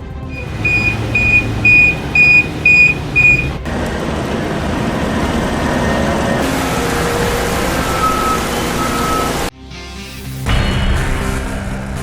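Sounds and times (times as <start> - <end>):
diesel engine running: 0.3 - 9.5
back-up alarm beeping: 0.4 - 9.5.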